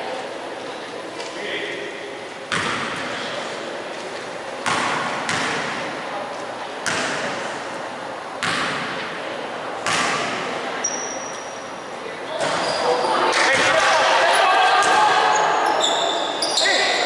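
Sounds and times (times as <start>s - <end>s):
thuds echoing in a gym hall: 2.4s - 3.4s, 4.6s - 10.9s, 12.3s - 15.6s.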